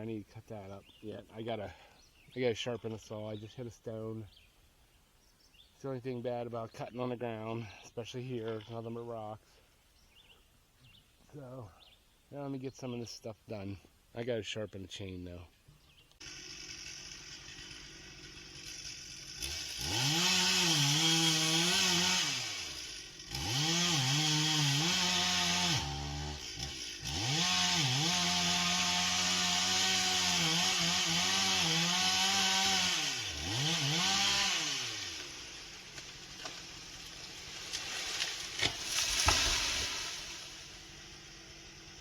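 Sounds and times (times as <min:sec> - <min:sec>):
chainsaw cutting through log: 0:16.2 - 0:42.0.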